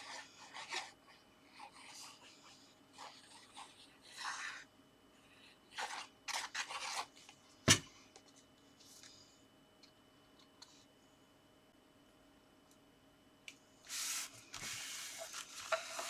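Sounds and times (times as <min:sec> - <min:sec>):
paper rubbed onto card: 0:13.9 - 0:16.0.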